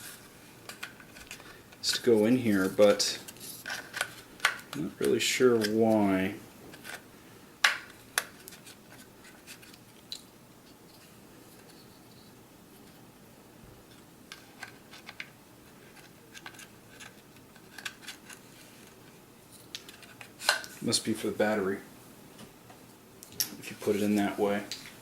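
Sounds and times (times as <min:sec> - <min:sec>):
plastic parts clicking and tapping: 0:03.6 - 0:05.8, 0:13.9 - 0:19.0.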